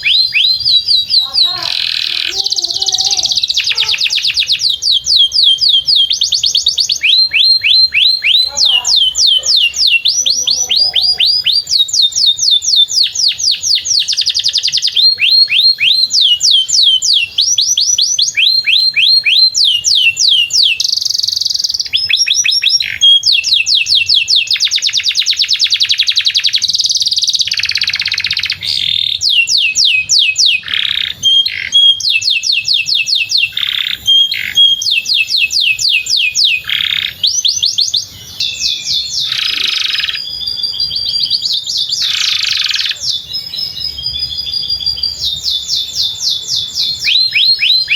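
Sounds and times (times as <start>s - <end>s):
canary singing: 0.0s - 47.9s.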